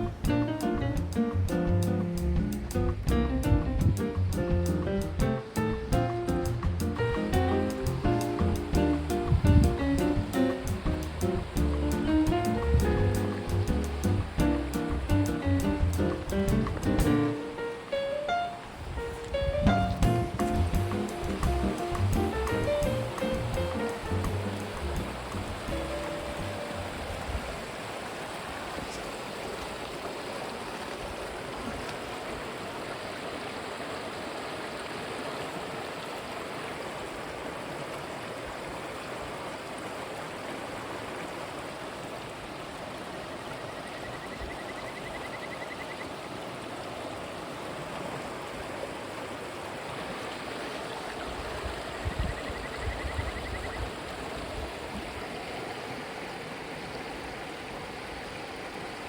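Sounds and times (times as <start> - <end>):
low thumps: 0.0 - 17.4, 19.4 - 26.6
river stream rushing: 10.0 - 15.1, 16.1 - 52.7, 53.5 - 59.0.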